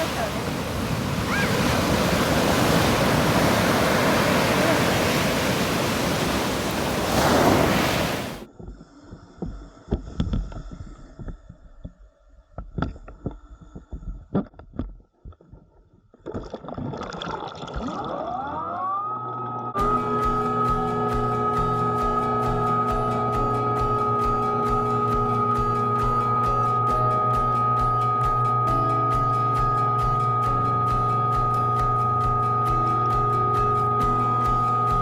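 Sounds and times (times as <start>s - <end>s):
rough surf: 0.0s - 8.5s
wind rushing on microphone: 0.0s - 8.5s
muffled underwater knocks and clicks: 8.5s - 18.0s.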